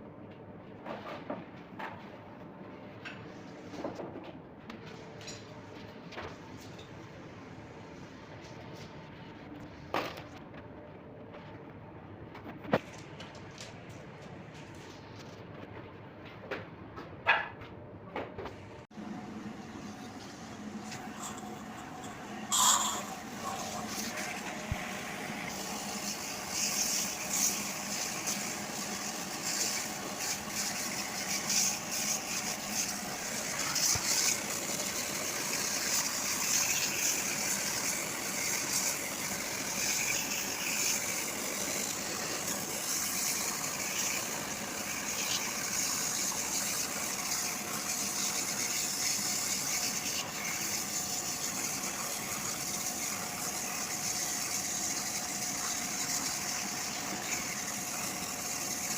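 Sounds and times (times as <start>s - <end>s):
pump motor running: 18.9s - 58.9s
pressure washer spraying water: 22.5s - 55.0s.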